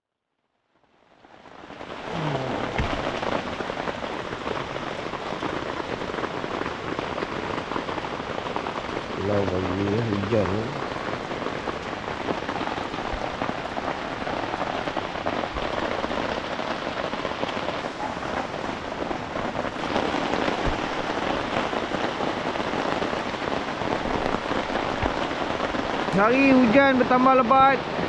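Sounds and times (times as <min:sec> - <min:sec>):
heavy rain on a tarp: 0:00.2 - 0:28.0
faint low thuds: 0:02.6 - 0:03.4, 0:20.4 - 0:21.4.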